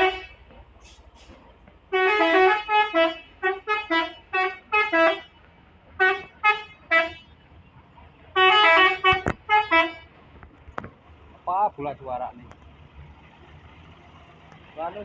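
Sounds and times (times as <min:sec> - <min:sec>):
musical vehicle horn toots: 0:00.0 - 0:00.4, 0:01.9 - 0:05.3, 0:06.0 - 0:07.3, 0:08.4 - 0:10.0.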